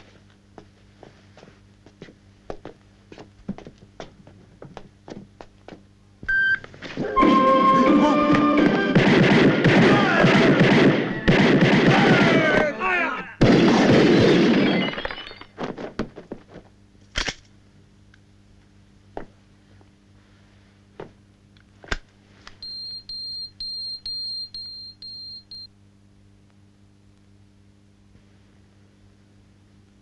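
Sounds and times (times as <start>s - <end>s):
sharp shots or impacts: 8.6s - 12.6s, 13.4s - 14.8s
rapid gunfire: 8.9s - 12.7s, 13.4s - 14.6s
voices: 9.8s - 10.7s, 11.9s - 13.4s.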